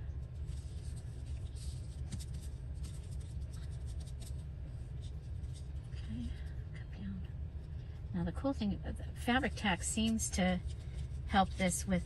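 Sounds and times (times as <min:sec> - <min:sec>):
steady low hum: 0:00.0 - 0:12.0
paper and fabric rustling: 0:00.2 - 0:06.6, 0:09.2 - 0:12.0.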